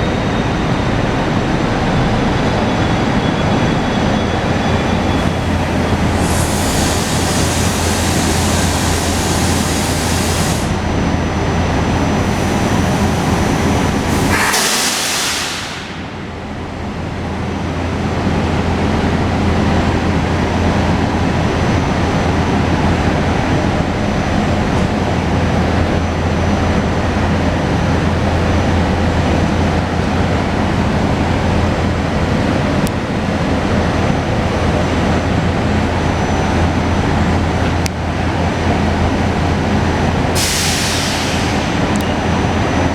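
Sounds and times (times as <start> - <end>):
train hum and rumble: 0.0 - 42.9
hiss: 5.0 - 10.9, 11.9 - 16.4, 40.4 - 42.5.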